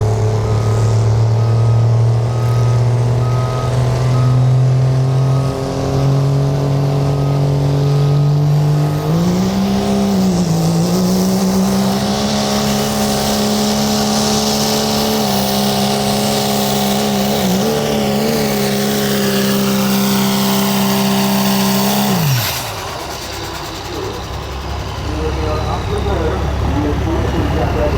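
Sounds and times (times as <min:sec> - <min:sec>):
diesel truck engine revving: 0:00.0 - 0:27.9.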